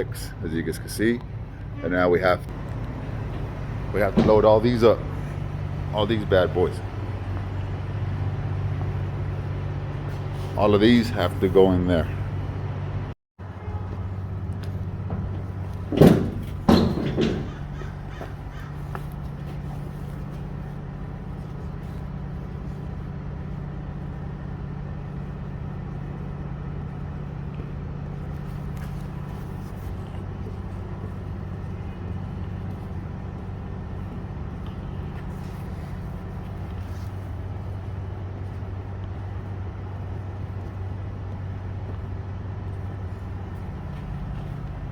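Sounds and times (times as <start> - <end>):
diesel truck engine running: 0.0 - 44.9.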